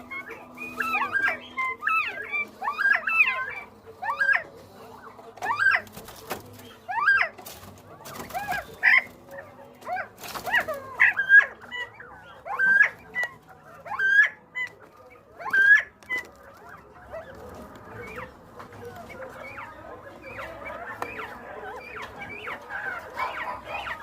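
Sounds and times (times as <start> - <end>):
quail whistled calls: 0.0 - 7.4, 10.0 - 24.0.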